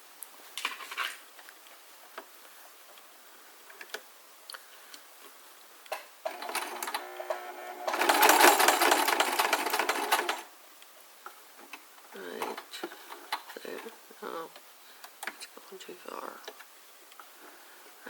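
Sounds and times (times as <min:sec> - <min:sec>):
sewing machine stitching: 0:06.3 - 0:10.5.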